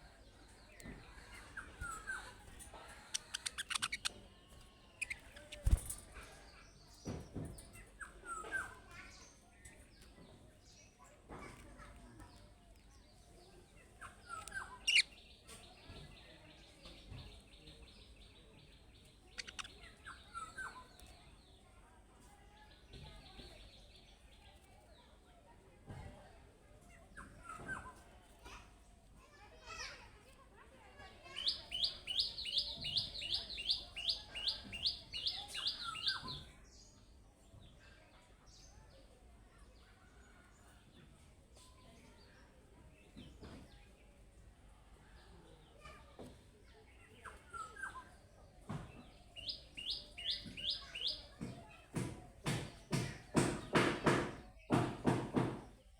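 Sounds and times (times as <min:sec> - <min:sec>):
budgerigars chattering: 0:03.0 - 0:04.2, 0:14.2 - 0:15.2, 0:19.3 - 0:20.0
sharp bird chirps: 0:03.2 - 0:04.2.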